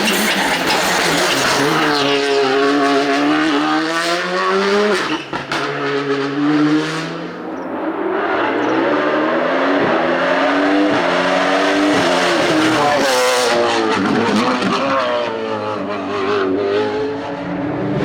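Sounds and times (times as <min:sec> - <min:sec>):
race car engine accelerating: 0:00.0 - 0:18.0.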